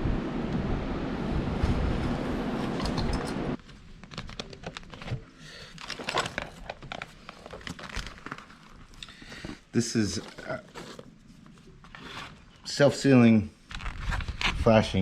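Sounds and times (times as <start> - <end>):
loud steady rush of noise: 0.0 - 3.6
clicks and crinkling of handling: 2.7 - 12.7, 13.6 - 14.7.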